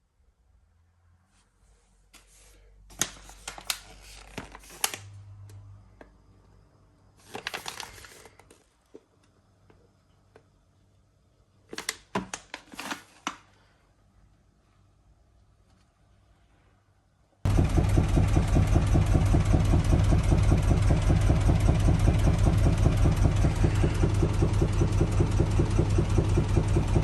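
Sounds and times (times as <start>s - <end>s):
low motor hum: 17.5s - 27.0s.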